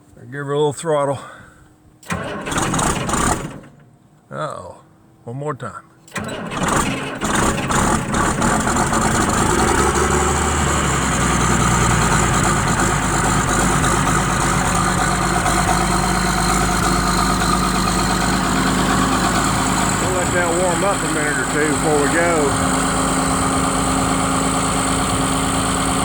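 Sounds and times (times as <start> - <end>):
tractor diesel engine starting: 2.0 - 3.8, 6.1 - 26.0
diesel engine idling: 6.1 - 26.0.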